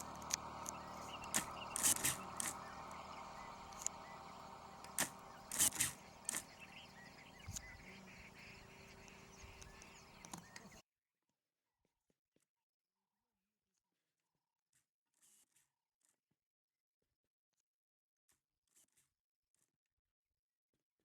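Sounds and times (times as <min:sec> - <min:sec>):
sharp clicks and snaps: 0:00.0 - 0:04.1
low background hum: 0:00.0 - 0:10.8.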